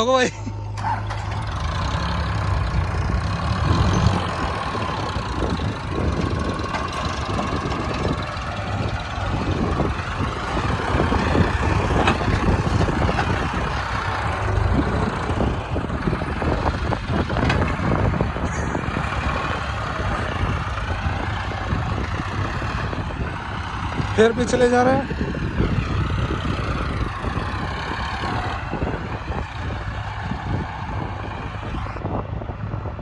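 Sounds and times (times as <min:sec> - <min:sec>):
heavy diesel engine under load: 0:00.0 - 0:33.0
machinery clanks and knocks: 0:00.8 - 0:22.8.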